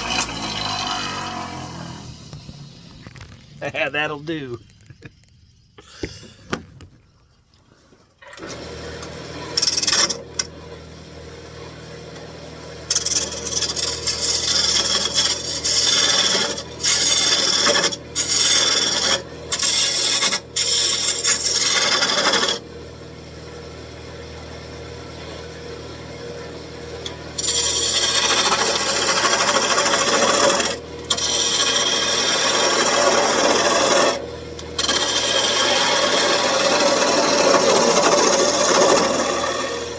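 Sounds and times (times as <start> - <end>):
gouge scraping spinning wood: 0.0 - 5.4, 9.6 - 10.3, 12.9 - 22.6, 27.3 - 39.9
wood lathe motor hum: 0.0 - 5.4, 8.4 - 10.5, 12.9 - 22.7, 27.0 - 39.9.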